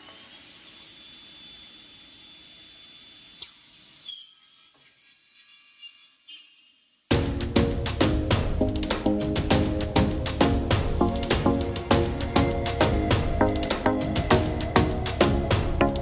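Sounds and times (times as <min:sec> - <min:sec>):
loud music: 0:07.1 - 0:16.0.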